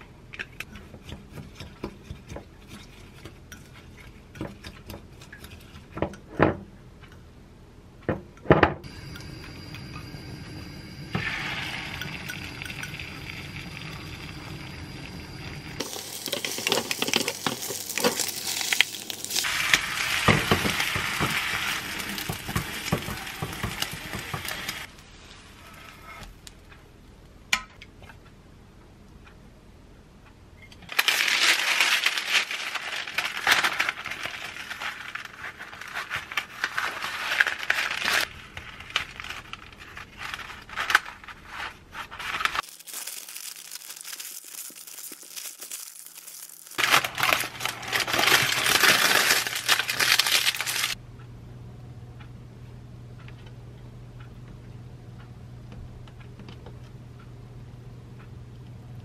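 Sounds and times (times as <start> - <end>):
egg sizzling in frying pan: 8.9 - 25.5, 42.6 - 51.0
parchment paper crinkling: 30.9 - 51.0.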